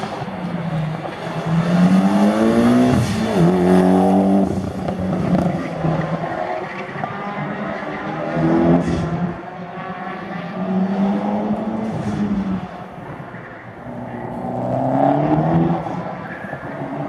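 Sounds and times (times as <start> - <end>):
car engine accelerating hard: 13.8 - 17.0.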